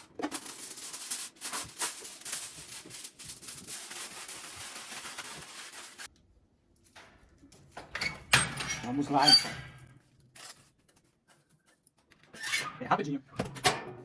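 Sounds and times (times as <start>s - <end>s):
rustling and rubbing: 0.0s - 6.1s.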